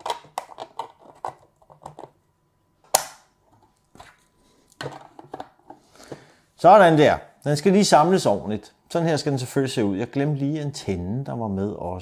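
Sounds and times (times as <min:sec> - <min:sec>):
plastic parts clicking and rattling: 0:00.0 - 0:02.2
sharp plastic snap: 0:02.9 - 0:03.3.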